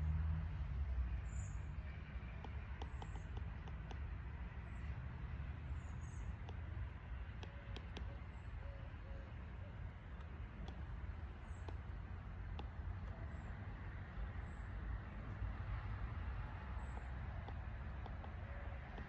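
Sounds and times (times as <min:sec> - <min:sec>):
faint clicks: 0:01.1 - 0:19.0.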